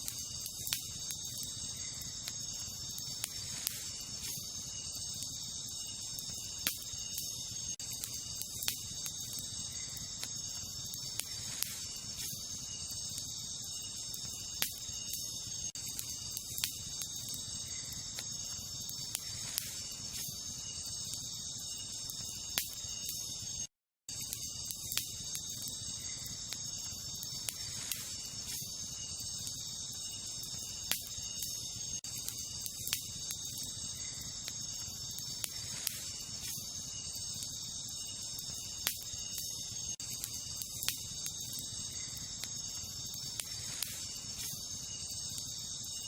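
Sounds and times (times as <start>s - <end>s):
campfire crackling: 0.0s - 46.0s
crickets chirping: 0.0s - 46.0s.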